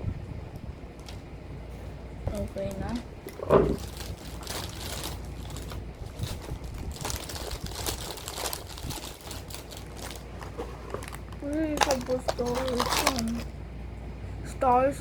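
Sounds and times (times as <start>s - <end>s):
plastic packaging crinkling: 0.9s - 1.3s, 2.3s - 13.5s.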